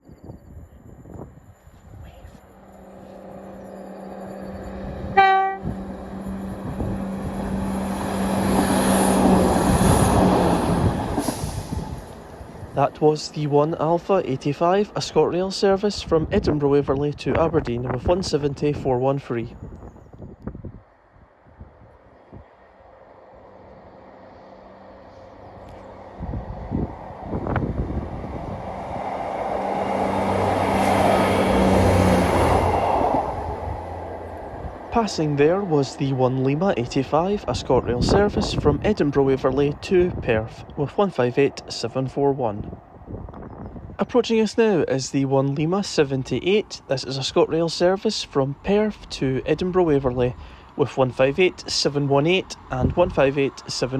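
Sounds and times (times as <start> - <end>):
train engine and wheel noise: 0.0 - 53.9
train horn blast: 4.3 - 7.0.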